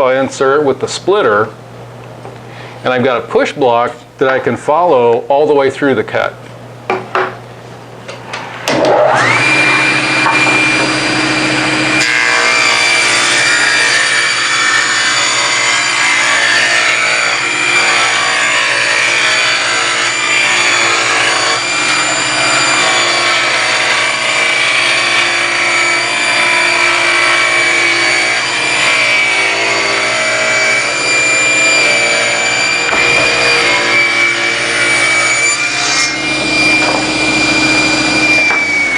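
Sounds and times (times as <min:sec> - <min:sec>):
table saw whining: 0:08.3 - 0:38.9.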